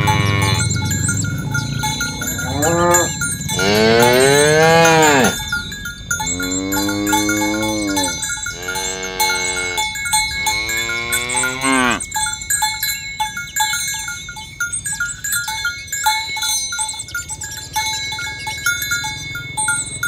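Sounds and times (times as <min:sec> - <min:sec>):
cow mooing: 0:00.0 - 0:00.9, 0:02.0 - 0:05.4, 0:06.2 - 0:12.0
short ringing bell notes: 0:00.0 - 0:20.0.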